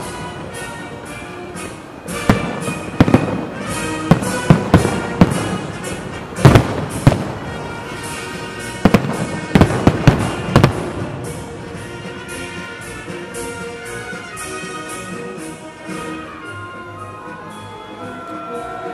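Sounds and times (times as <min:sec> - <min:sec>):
fireworks bangs: 0:00.0 - 0:12.9
music playing: 0:00.0 - 0:18.9.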